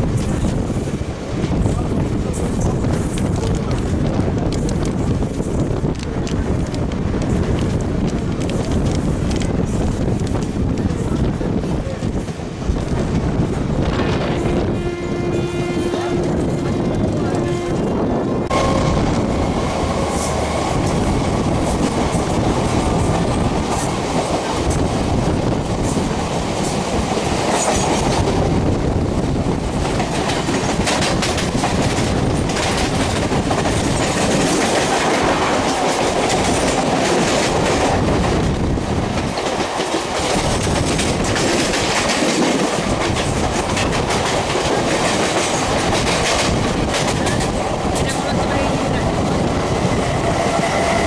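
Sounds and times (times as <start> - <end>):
train wheels rumbling on rails: 0.0 - 51.0
wheels clacking over rail joints: 18.5 - 51.0.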